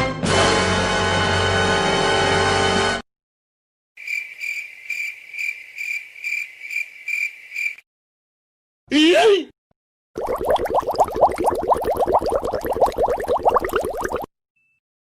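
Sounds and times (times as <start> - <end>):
cricket chirping: 4.0 - 7.8.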